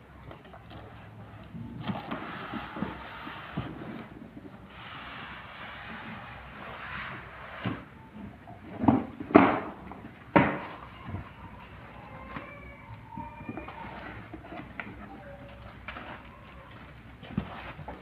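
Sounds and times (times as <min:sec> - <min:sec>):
cardboard rustling and scraping: 0:01.8 - 0:09.4, 0:13.5 - 0:18.0
knocks and thumps on cardboard: 0:08.8 - 0:10.7.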